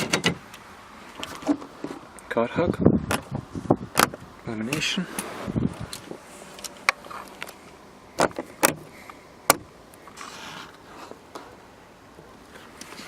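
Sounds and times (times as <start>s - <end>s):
car interior fittings clicking: 3.9s - 4.2s, 8.2s - 8.9s.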